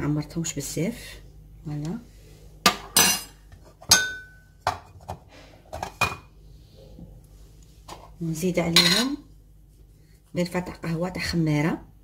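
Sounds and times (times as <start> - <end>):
spoon and dishes clinking: 2.7 - 4.9, 8.8 - 9.2.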